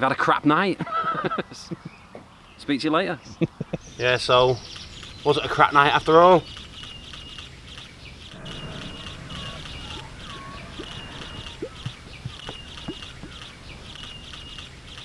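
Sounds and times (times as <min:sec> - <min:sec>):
birds chirping: 0:00.0 - 0:15.0
low rising bird calls: 0:04.4 - 0:15.0.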